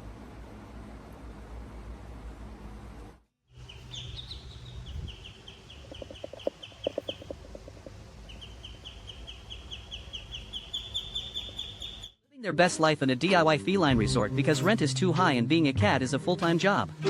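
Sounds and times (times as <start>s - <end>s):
steady low hum: 0.0s - 12.1s
bird chirping high notes: 3.6s - 7.3s
bird clucking rapidly: 3.7s - 12.1s.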